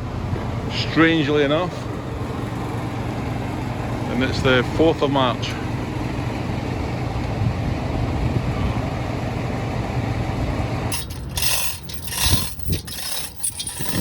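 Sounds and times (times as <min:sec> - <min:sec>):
metallic tool clinks and scrapes: 0:10.9 - 0:14.0.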